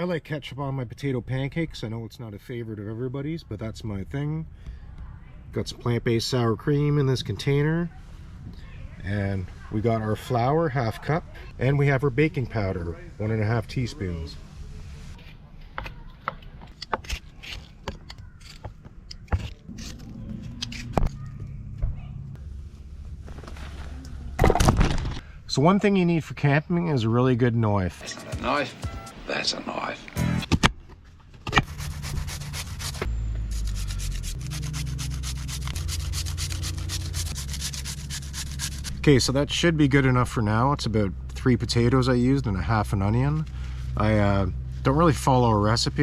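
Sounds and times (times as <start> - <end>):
low background hum: 0.8 - 30.0, 30.7 - 46.0
potatoes grated on a grater: 34.4 - 38.9.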